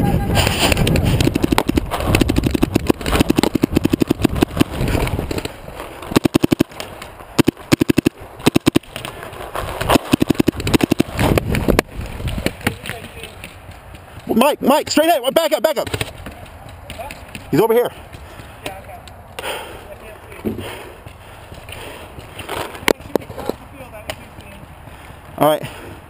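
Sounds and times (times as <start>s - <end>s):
paintball markers firing: 0.7s - 9.2s, 9.8s - 14.8s, 15.8s - 19.6s.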